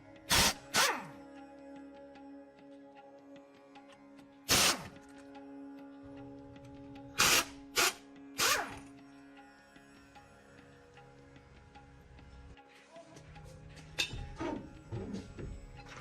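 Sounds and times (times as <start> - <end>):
background music: 0.0 - 16.0
pneumatic tool bursts: 0.3 - 1.1, 4.5 - 5.0, 7.2 - 8.9.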